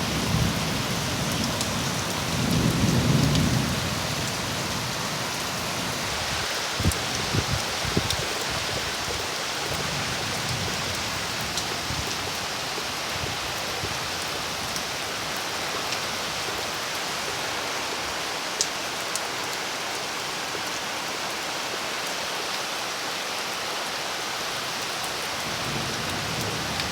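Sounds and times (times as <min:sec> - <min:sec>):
steady rain falling: 0:00.0 - 0:26.9.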